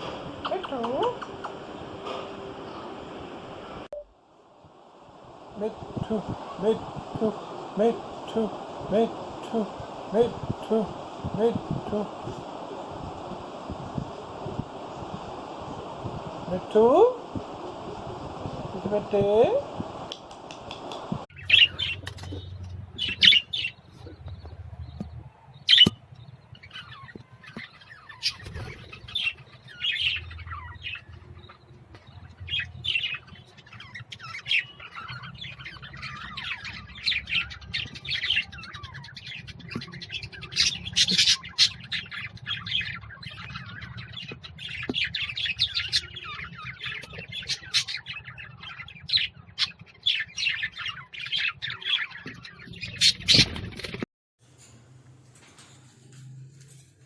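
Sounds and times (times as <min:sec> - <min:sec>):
low steady hum: 0:00.0 - 0:25.5
caged birds chirping and squawking: 0:20.7 - 0:54.0.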